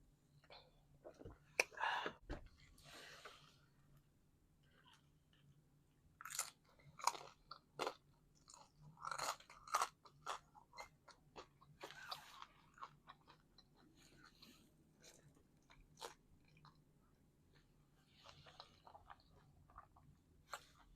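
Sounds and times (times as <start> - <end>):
person chewing and crunching: 4.8 - 20.9.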